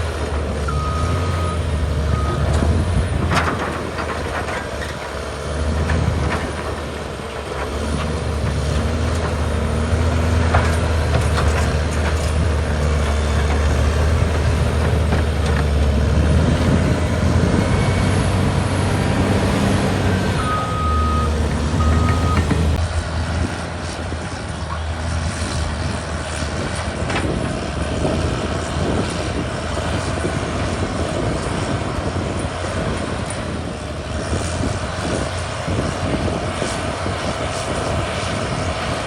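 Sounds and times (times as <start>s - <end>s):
bulldozer diesel engine: 0.0s - 39.0s
back-up alarm beeping: 0.7s - 2.7s, 20.4s - 22.8s.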